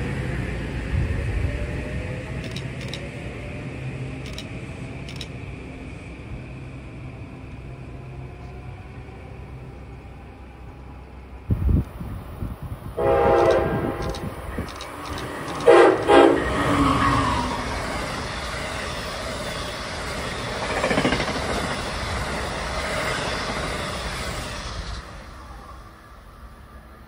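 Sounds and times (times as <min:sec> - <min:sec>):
train horn blasts: 0:13.0 - 0:14.4, 0:15.6 - 0:17.2
train wheels rushing and clattering: 0:13.4 - 0:25.4.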